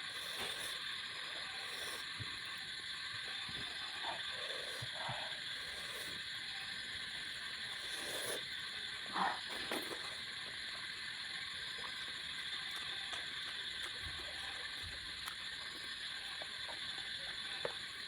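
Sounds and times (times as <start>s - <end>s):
soft chewing and mouth noises: 0.0s - 6.4s, 11.5s - 18.0s.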